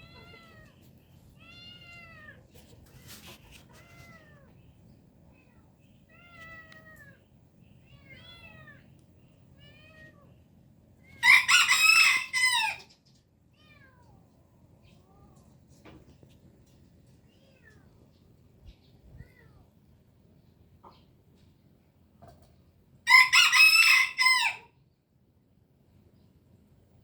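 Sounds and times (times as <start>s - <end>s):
rooster crowing: 11.2s - 12.9s, 23.1s - 24.7s.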